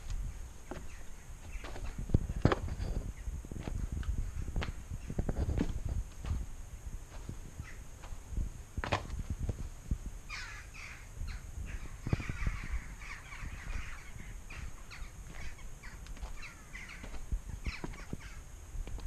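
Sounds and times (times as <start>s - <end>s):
footsteps thumping: 0.0s - 3.9s, 8.8s - 9.7s, 15.2s - 19.0s
birds calling: 0.0s - 6.5s, 7.1s - 9.2s, 10.2s - 19.0s.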